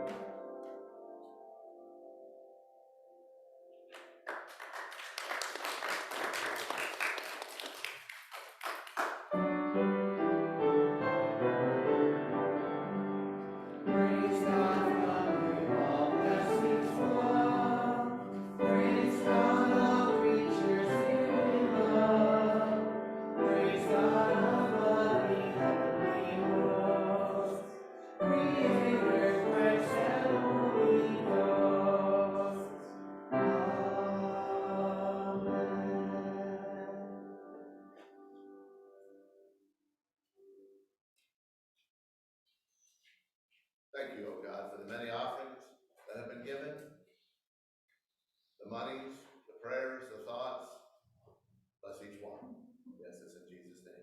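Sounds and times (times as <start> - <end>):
choir singing with accompaniment: 13.6 - 38.1.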